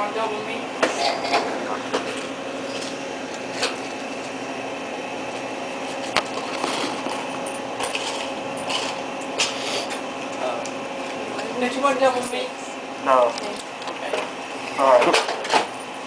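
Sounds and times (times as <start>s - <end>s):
sandwich shop hum: 0.0s - 16.0s.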